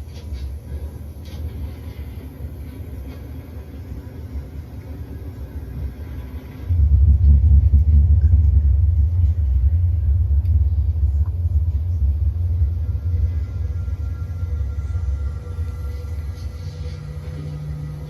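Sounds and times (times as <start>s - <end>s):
deep bass rumble: 6.7s - 18.0s.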